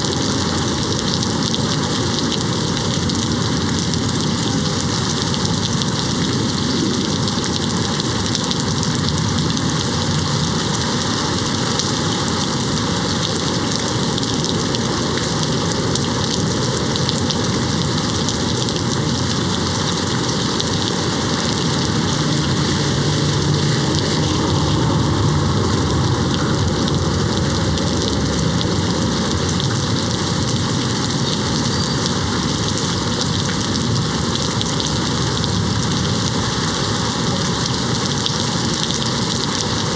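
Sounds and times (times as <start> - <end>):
heavy rain on window: 0.0 - 39.9
low rumble: 17.5 - 31.7.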